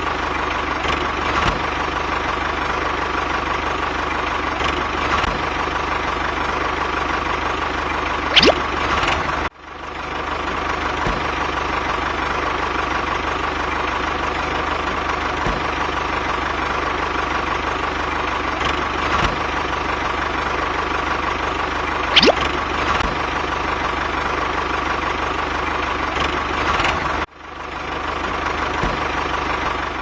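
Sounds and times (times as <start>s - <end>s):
short rising whoosh: 7.9s - 8.9s, 22.0s - 22.6s.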